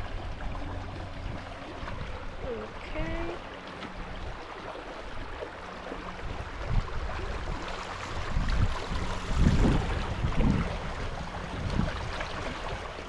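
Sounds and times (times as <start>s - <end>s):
creek water rushing: 0.0s - 13.0s
wind buffeting microphone: 6.0s - 13.0s.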